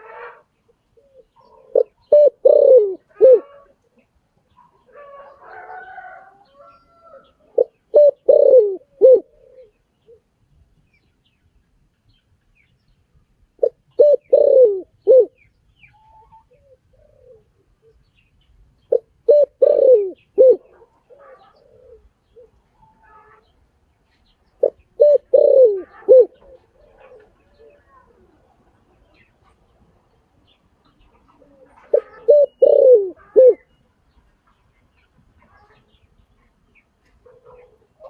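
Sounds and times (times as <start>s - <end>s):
small birds chirping: 0.6s - 5.4s, 6.4s - 38.0s
dove cooing: 1.0s - 4.0s, 4.8s - 10.3s, 13.6s - 15.4s, 16.0s - 18.0s, 18.9s - 23.4s, 24.6s - 29.3s, 31.0s - 33.8s.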